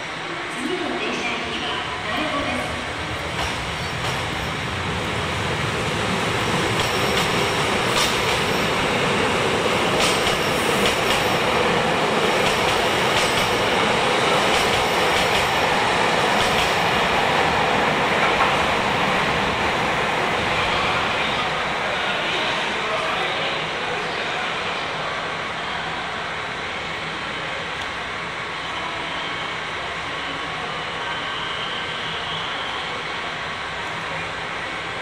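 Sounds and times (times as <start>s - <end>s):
train wheels clattering on rails: 3.2s - 5.2s, 6.4s - 8.9s, 9.8s - 11.5s, 12.2s - 13.7s, 14.3s - 17.1s, 18.1s - 18.8s.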